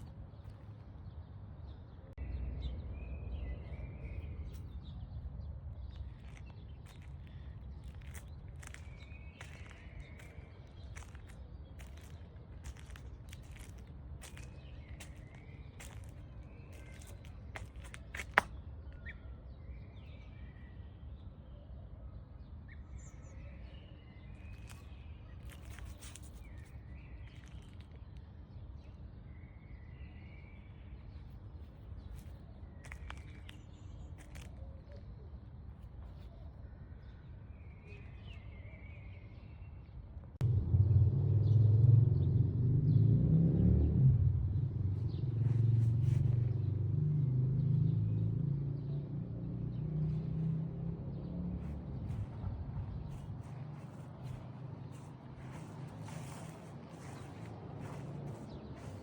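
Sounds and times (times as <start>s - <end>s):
birds chirping: 0.0s - 20.8s, 22.7s - 29.0s, 50.0s - 59.0s
low steady rumble: 40.4s - 42.8s
loud low rumble: 40.4s - 46.6s.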